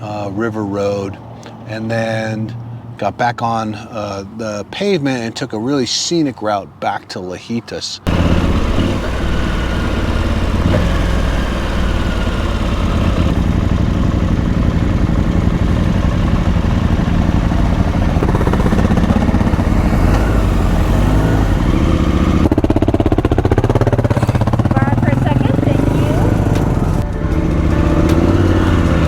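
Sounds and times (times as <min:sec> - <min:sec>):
motorcycle engine running: 0:08.1 - 0:29.0.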